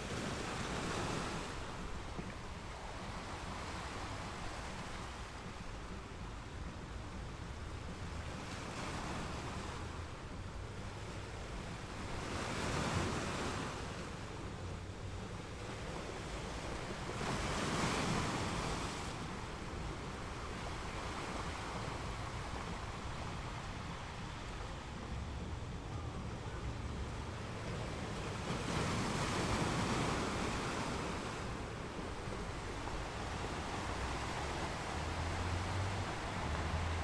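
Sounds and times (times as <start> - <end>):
choppy sea water washing: 13.8 - 37.0.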